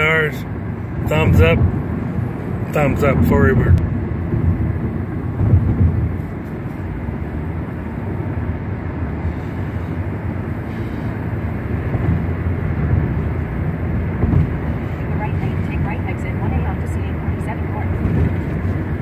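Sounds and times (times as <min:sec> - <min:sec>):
car road noise rumble: 0:00.0 - 0:19.0.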